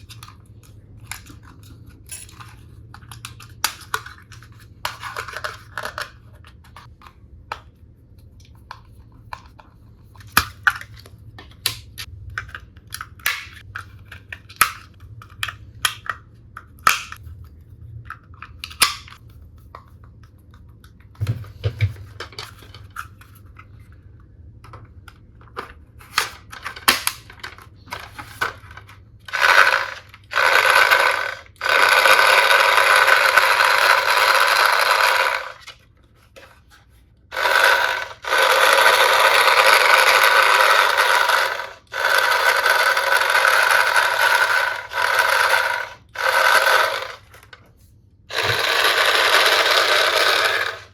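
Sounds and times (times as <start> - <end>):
plastic pieces clicking and tapping: 0.0 - 7.7, 8.6 - 17.2, 24.6 - 35.8, 37.3 - 47.6
loud continuous rasping noise: 48.3 - 50.9.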